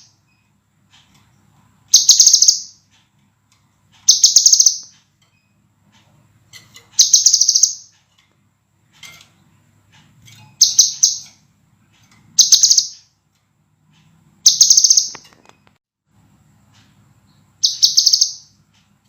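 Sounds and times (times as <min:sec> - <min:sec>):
bird singing high repeated notes: 0:01.9 - 0:02.8, 0:04.1 - 0:05.0, 0:07.0 - 0:08.0, 0:10.6 - 0:11.4, 0:12.4 - 0:13.1, 0:14.4 - 0:15.2, 0:17.6 - 0:18.6.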